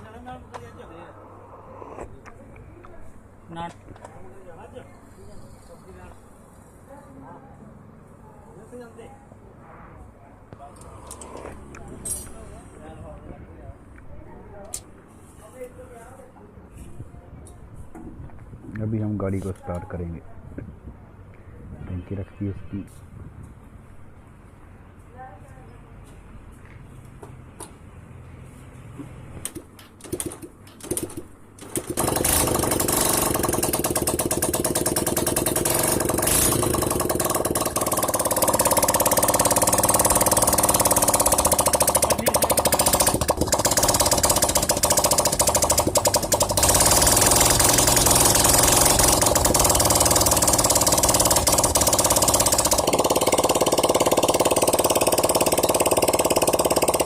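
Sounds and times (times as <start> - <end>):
motorcycle engine starting and running: 29.4 - 57.0.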